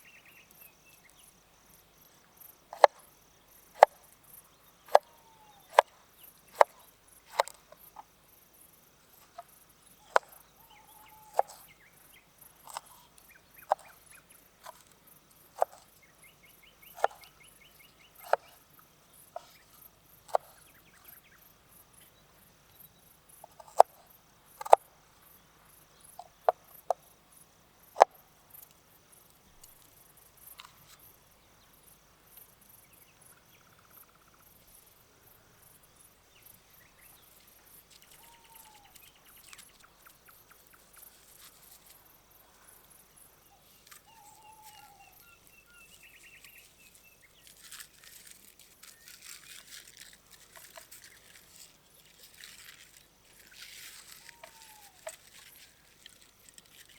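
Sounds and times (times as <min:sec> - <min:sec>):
crickets chirping: 0:00.0 - 0:56.9
bird calling: 0:04.9 - 0:07.5, 0:10.0 - 0:11.9, 0:38.0 - 0:40.9, 0:43.4 - 0:47.6, 0:53.4 - 0:56.9
rustling: 0:40.8 - 0:42.0, 0:45.9 - 0:56.9.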